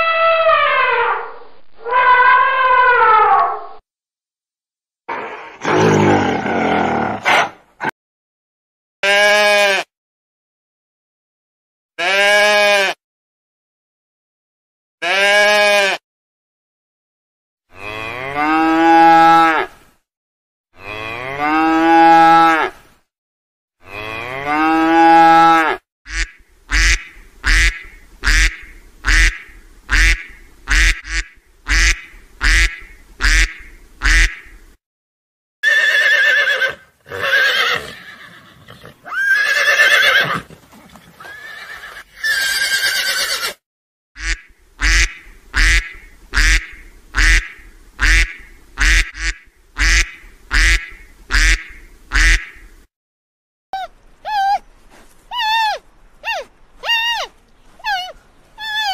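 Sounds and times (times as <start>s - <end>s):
ducks quacking: 26.1s - 34.6s, 44.2s - 52.7s.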